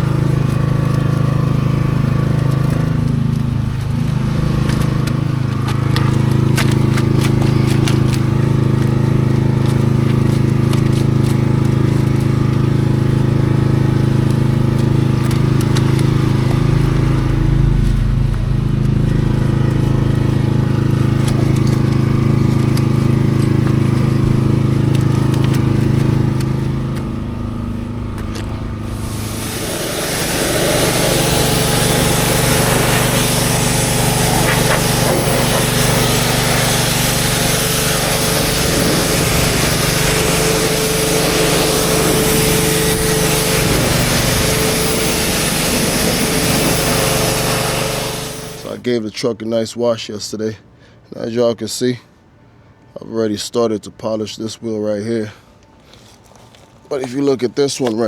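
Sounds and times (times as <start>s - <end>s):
small engine running: 0.0s - 48.8s
engine drone: 0.0s - 48.9s
loud steady hiss: 28.6s - 48.8s.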